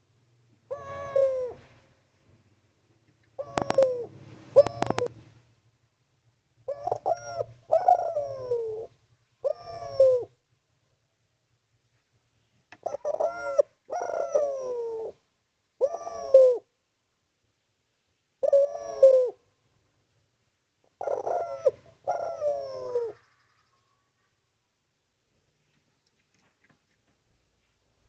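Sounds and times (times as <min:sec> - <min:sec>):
dove cooing: 0:00.7 - 0:01.8, 0:03.3 - 0:05.3, 0:06.6 - 0:10.4, 0:12.8 - 0:15.2, 0:15.8 - 0:16.7, 0:18.4 - 0:19.5, 0:20.9 - 0:24.1.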